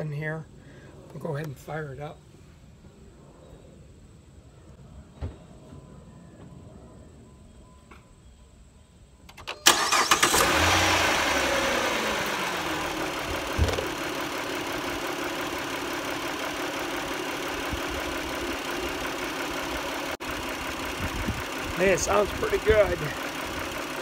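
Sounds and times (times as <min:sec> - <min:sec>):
car engine cranking and starting: 0:09.3 - 0:24.0
car engine idling: 0:09.6 - 0:24.0.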